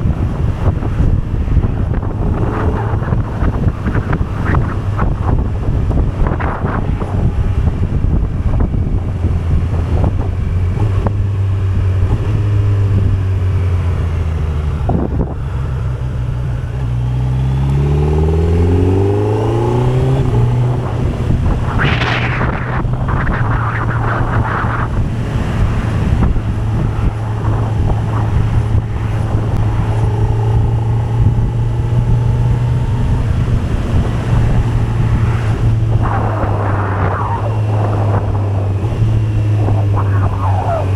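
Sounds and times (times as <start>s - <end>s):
motorcycle engine running: 0.0s - 40.9s
short rush of noise: 19.1s - 30.6s.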